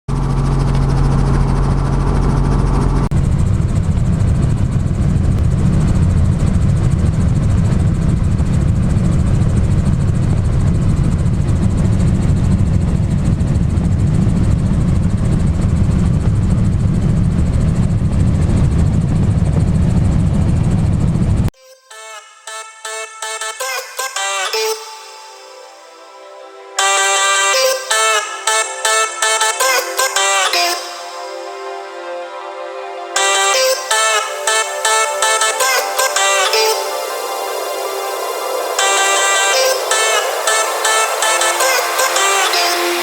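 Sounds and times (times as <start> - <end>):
helicopter engine and rotor: 0.1 - 21.3.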